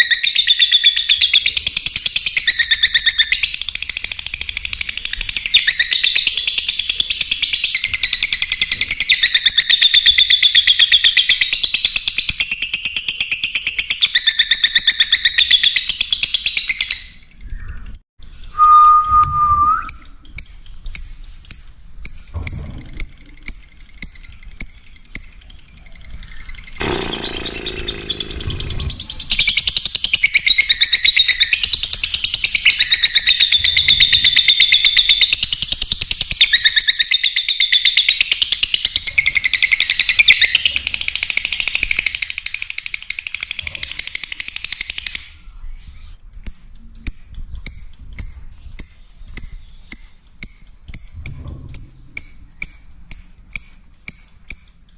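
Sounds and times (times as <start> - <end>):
short high repeated calls: 18.5 - 20.1
lovebirds chattering: 20.3 - 31.5.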